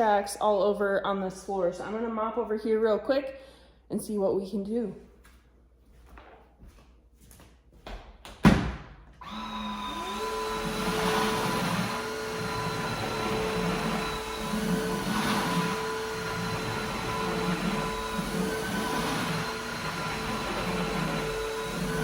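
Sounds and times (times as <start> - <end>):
vacuum mop motor whine: 9.2 - 22.0.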